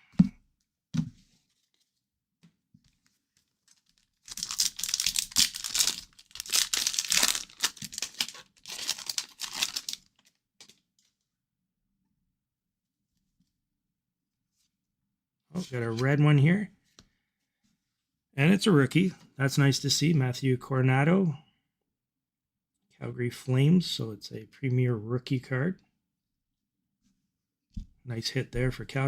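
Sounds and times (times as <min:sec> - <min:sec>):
card pack wrapper tearing: 0:04.1 - 0:10.3.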